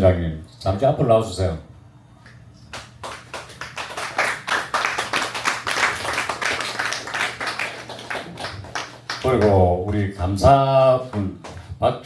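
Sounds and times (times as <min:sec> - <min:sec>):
audience applauding: 0:02.8 - 0:09.6.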